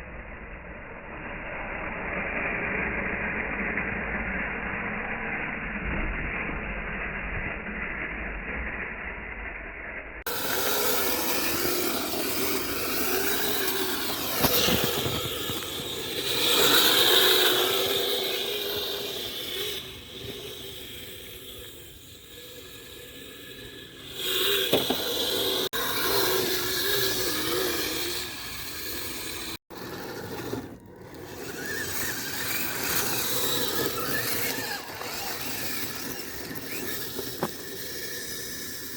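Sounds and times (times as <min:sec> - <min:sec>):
electric motor whining: 0:10.3 - 0:38.9
tracks churning snow: 0:10.3 - 0:38.9.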